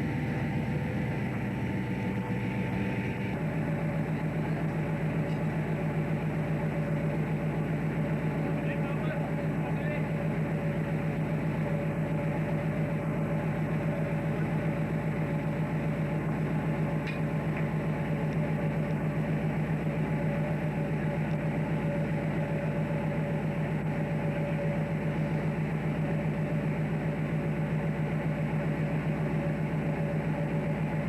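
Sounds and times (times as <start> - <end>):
thin steady hum: 0.0 - 3.6
engine droning: 0.0 - 31.0.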